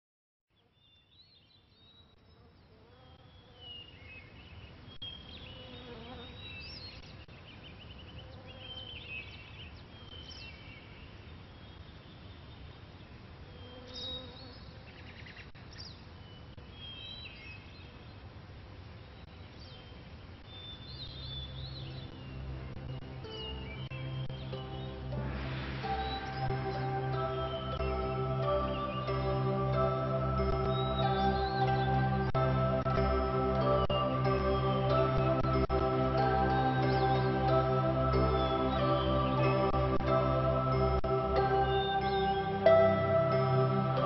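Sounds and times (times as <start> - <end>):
small birds singing: 0.5 - 18.2, 19.0 - 44.0
steady low buzz: 21.4 - 44.0.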